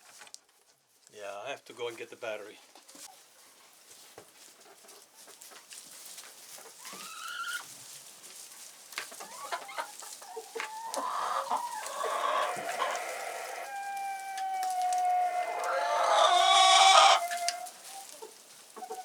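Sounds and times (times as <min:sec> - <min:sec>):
chickens clucking: 0:06.6 - 0:07.7, 0:09.0 - 0:19.0.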